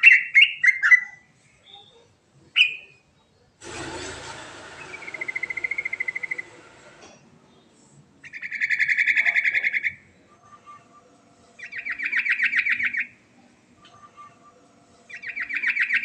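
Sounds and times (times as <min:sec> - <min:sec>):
rushing hiss: 0:03.6 - 0:07.5.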